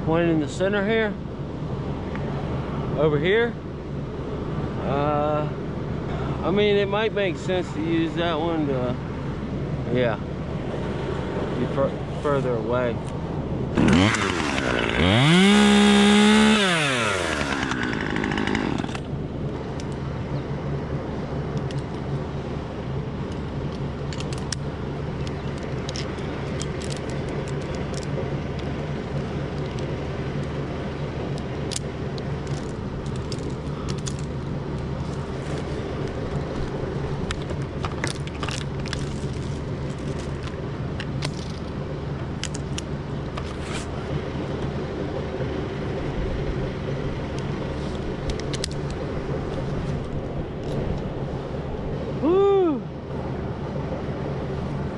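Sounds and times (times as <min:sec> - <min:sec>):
chainsaw idling: 0:13.8 - 0:19.2.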